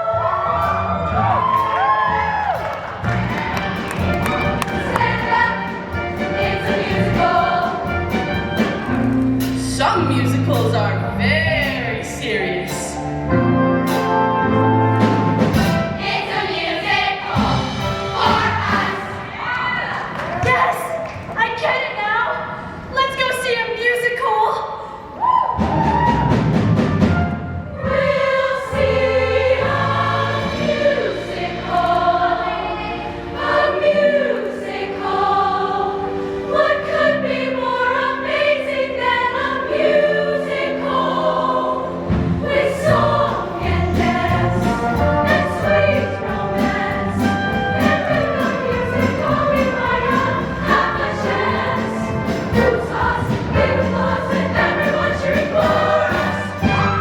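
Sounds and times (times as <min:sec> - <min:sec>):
choir singing in harmony: 0:00.0 - 0:09.3, 0:11.8 - 0:20.1, 0:26.6 - 0:57.0
instrumental backing: 0:01.4 - 0:19.2.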